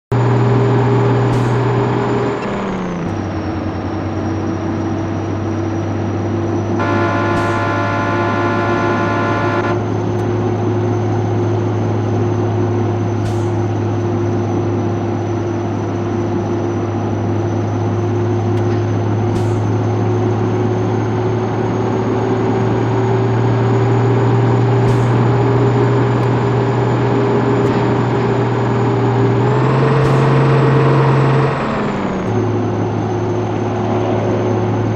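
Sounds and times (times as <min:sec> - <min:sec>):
truck diesel engine droning: 0:00.0 - 0:34.9
truck horn: 0:06.8 - 0:10.0, 0:22.4 - 0:32.3.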